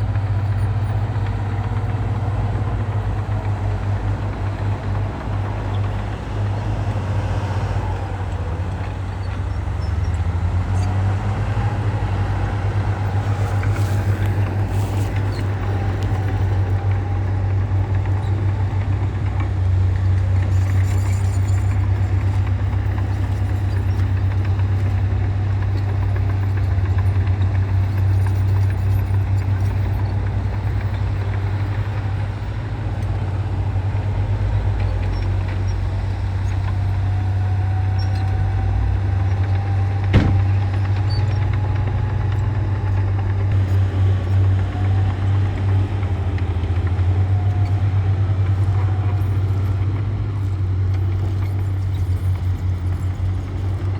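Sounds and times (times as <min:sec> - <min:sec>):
diesel engine rumbling: 0:00.0 - 0:53.9
sharp knock: 0:40.2 - 0:40.5.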